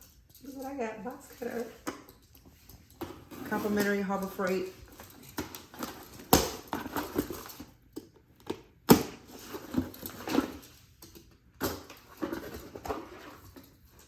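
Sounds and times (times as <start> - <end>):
cardboard scraping and rustling: 11.9 - 14.0.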